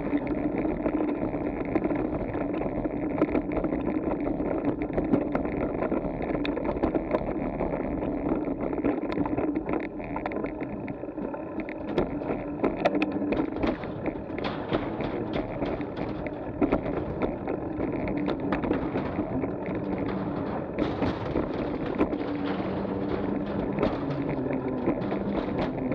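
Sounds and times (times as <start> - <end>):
bicycle tyres rolling: 0.0 - 25.9
bike rattling: 0.0 - 25.9
sharp clicks and knocks: 0.0 - 25.9.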